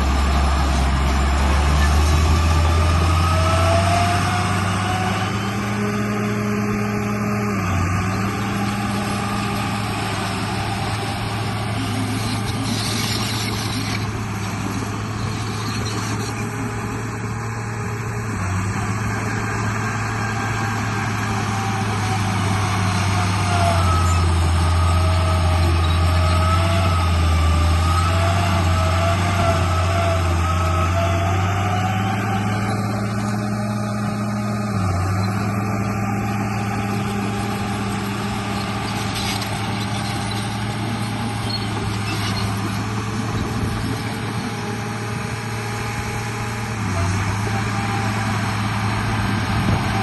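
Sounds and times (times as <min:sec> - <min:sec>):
low engine drone: 0:00.0 - 0:50.0.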